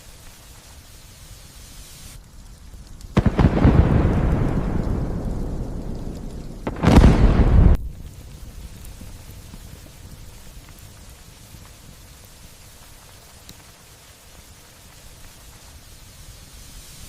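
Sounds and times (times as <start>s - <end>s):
light rain hissing: 0.0s - 17.0s
thunder rumbling: 3.1s - 11.7s.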